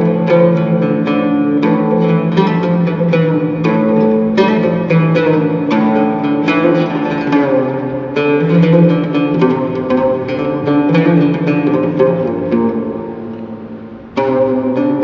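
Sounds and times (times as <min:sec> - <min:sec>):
oud melody plucked: 0:00.0 - 0:15.0.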